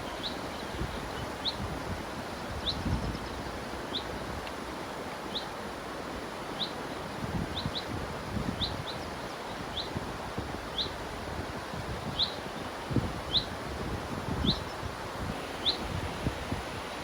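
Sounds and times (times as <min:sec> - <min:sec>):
river water running: 0:00.0 - 0:17.0
small bird chirping: 0:15.4 - 0:15.9.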